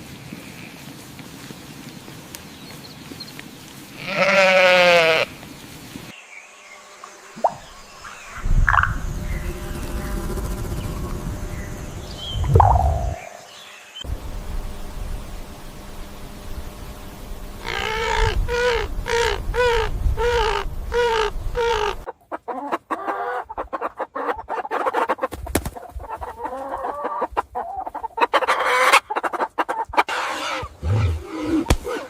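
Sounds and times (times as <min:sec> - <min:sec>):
chickens clucking: 0:17.6 - 0:30.1.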